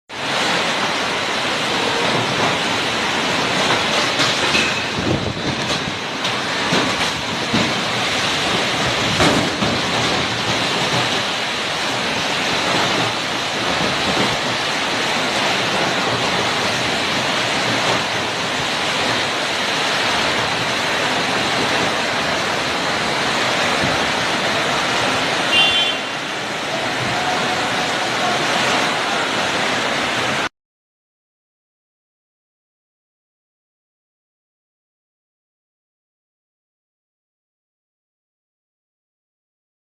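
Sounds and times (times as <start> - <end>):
heavy rain pouring: 0.1 - 30.5
strong wind gusts: 0.2 - 30.5.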